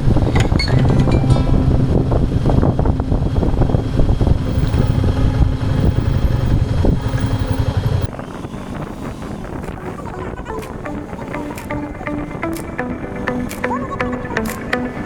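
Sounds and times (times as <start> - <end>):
motorcycle engine running: 0.7 - 8.1.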